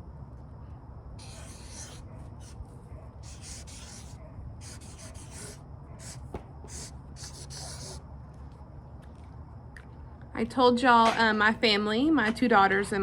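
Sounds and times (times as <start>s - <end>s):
scratchy writing strokes on canvas: 1.2s - 2.6s, 3.2s - 8.0s.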